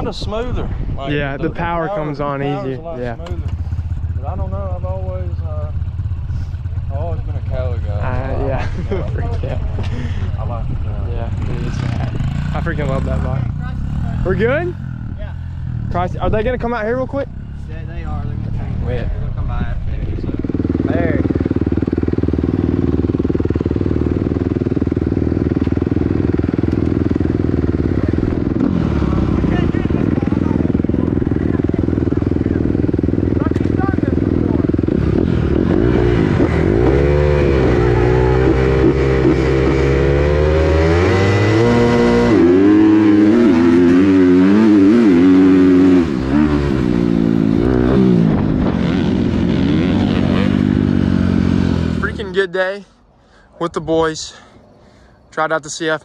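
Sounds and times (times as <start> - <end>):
vehicle engine idling: 3.0 - 35.0.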